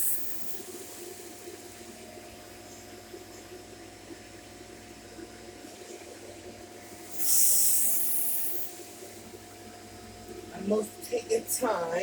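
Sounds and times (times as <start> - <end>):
high hiss of rushing air: 7.1 - 8.7.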